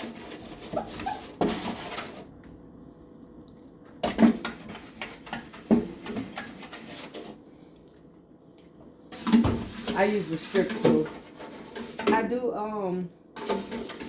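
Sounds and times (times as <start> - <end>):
stiff brush scrubbing: 0.0 - 2.2.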